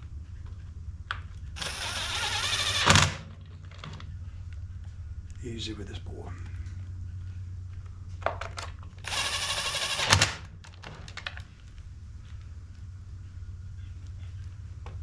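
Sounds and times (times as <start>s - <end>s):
steady low hum: 0.0s - 15.0s
dense rattling burst: 1.6s - 3.5s.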